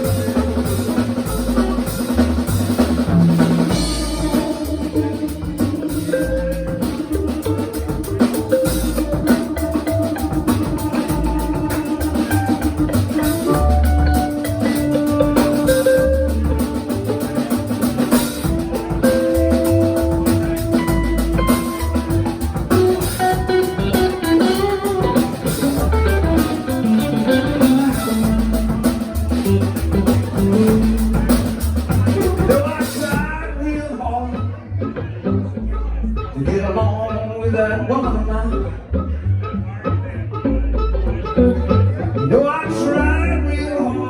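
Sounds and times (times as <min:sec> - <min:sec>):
drum kit beat: 0:00.0 - 0:33.5
bass guitar: 0:00.0 - 0:44.0
lead guitar bending notes: 0:00.0 - 0:44.0.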